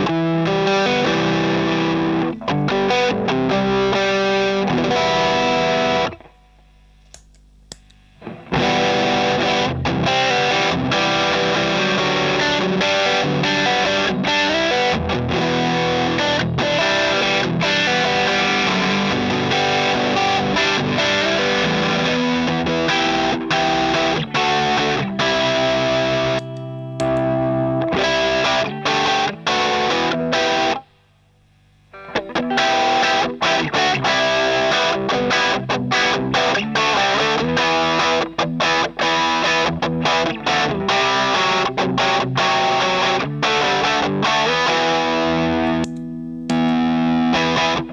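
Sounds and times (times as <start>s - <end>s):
distorted electric guitar: 0.0s - 7.0s, 8.1s - 31.1s, 31.7s - 47.9s.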